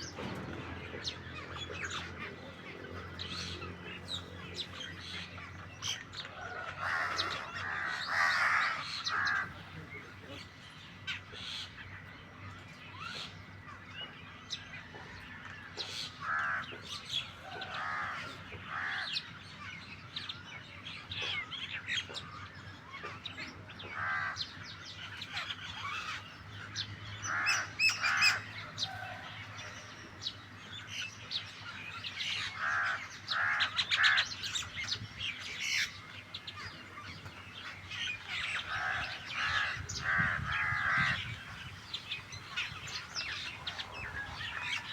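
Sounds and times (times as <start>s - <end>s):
birds harsh scratchy calls: 0.0s - 9.7s, 15.8s - 19.3s, 23.9s - 30.1s, 30.8s - 44.9s.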